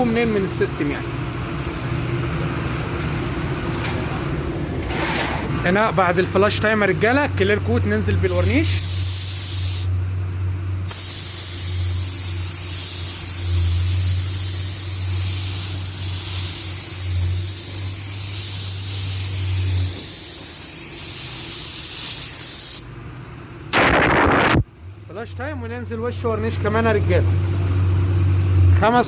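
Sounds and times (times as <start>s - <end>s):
spray gun hissing: 8.4s - 9.9s, 10.9s - 22.9s, 26.6s - 28.0s.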